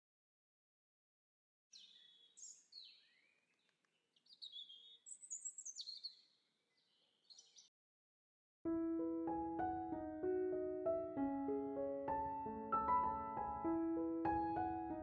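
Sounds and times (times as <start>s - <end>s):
birds chirping and singing: 1.7s - 7.7s.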